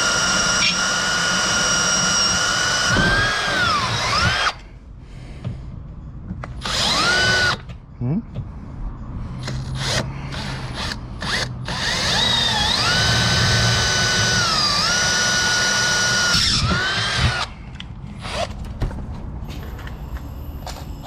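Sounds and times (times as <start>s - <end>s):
power drill whining: 0.0s - 4.6s, 6.6s - 7.7s, 9.5s - 17.5s, 18.2s - 18.6s.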